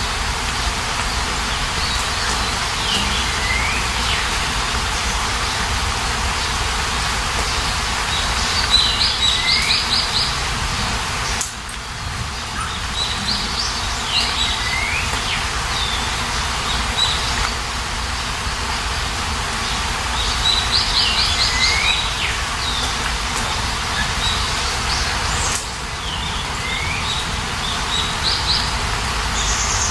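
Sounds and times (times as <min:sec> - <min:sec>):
songbird singing: 0:00.0 - 0:29.9
steady rain hiss: 0:00.0 - 0:29.9.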